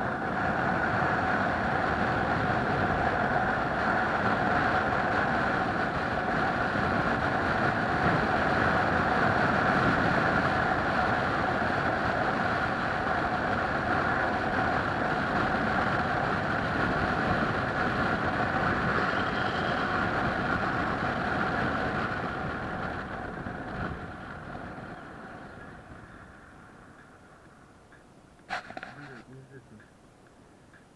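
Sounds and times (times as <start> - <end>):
moving vehicle running noise: 0.0 - 30.9.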